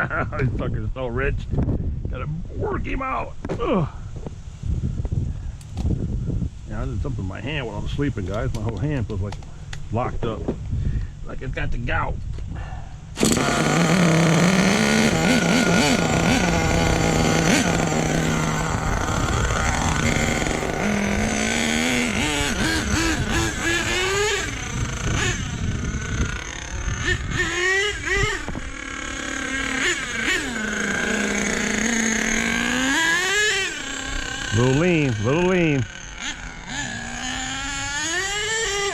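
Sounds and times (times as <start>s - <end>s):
model engine revving: 13.1s - 38.9s.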